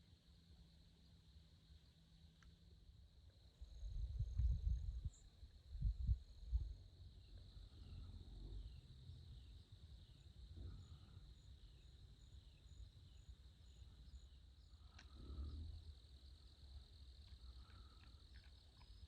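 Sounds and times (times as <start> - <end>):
high insect drone: 0.0 - 19.0
low rumble: 3.6 - 9.5.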